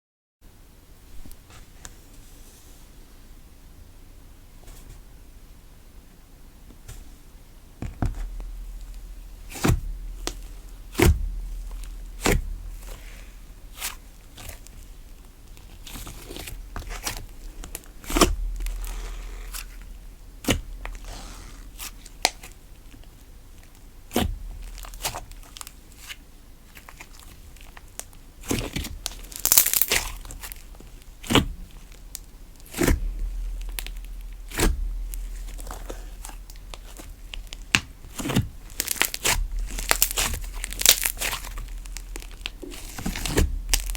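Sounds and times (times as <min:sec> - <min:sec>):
slime crackling when stretched: 0:08.6 - 0:22.6, 0:24.1 - 0:43.9.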